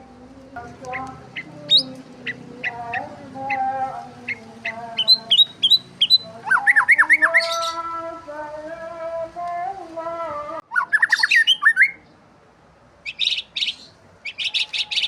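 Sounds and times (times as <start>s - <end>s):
small birds chirping: 0.5s - 8.2s, 10.6s - 12.2s, 13.0s - 15.0s.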